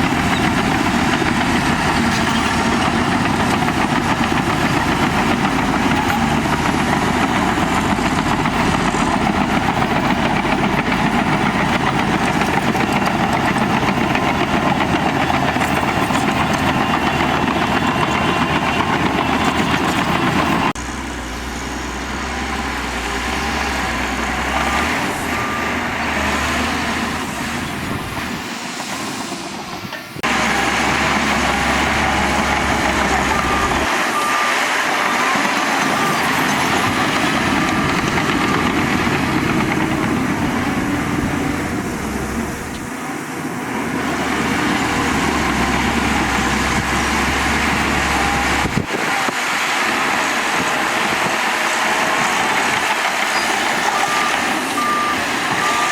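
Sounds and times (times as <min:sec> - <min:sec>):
heavy machinery diesel engine running: 0:00.0 - 0:55.9.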